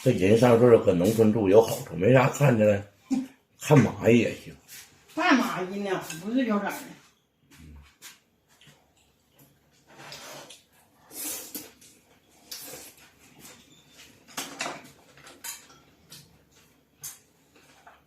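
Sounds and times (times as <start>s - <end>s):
chopsticks and bowls clinking: 11.7s - 18.0s.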